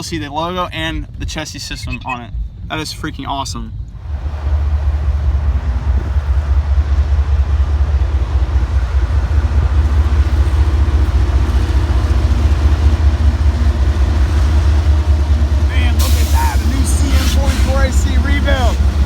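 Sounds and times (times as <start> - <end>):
freight train rumbling past: 4.0 - 19.0.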